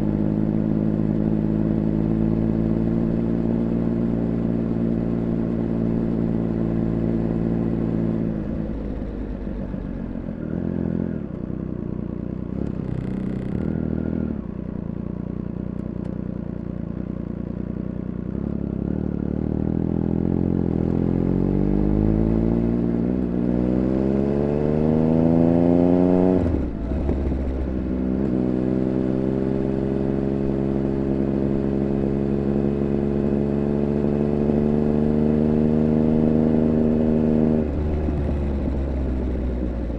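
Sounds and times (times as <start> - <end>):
motorcycle engine revving: 12.5 - 14.6, 18.3 - 39.9.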